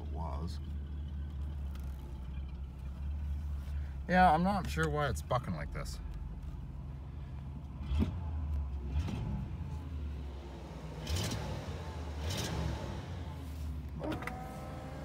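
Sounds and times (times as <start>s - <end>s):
car engine running unevenly: 0.0s - 15.0s.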